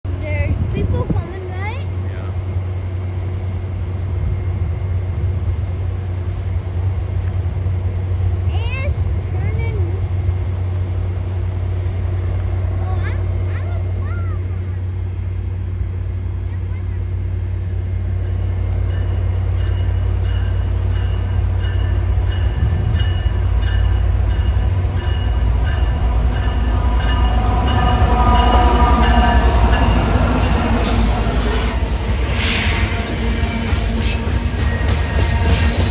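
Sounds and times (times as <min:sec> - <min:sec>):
train rumbling: 0:00.0 - 0:35.9
high-pitched ringing: 0:18.2 - 0:32.0.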